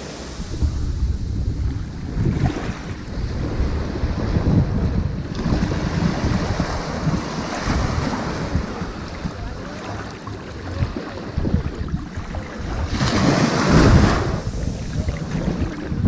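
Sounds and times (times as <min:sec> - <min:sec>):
ocean surf on beach: 0:00.0 - 0:16.0
wind rumble on microphone: 0:00.0 - 0:16.0.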